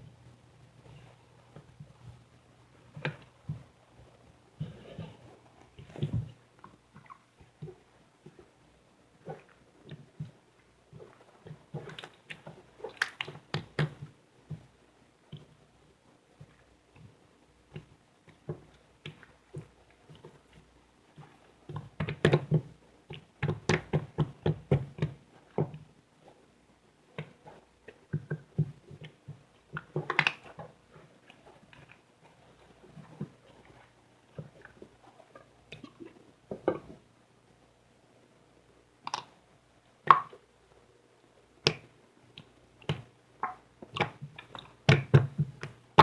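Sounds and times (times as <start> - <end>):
clay squished by hand: 42.9 - 46.0.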